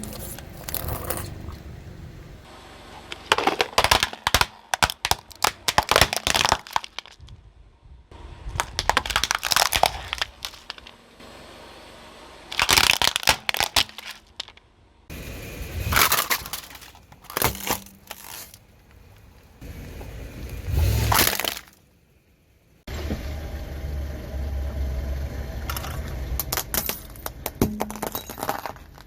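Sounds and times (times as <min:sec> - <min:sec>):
objects crunching under car tyre: 0:00.0 - 0:01.9, 0:03.0 - 0:07.5, 0:08.4 - 0:11.0, 0:12.5 - 0:14.7, 0:15.8 - 0:21.9, 0:25.7 - 0:29.0.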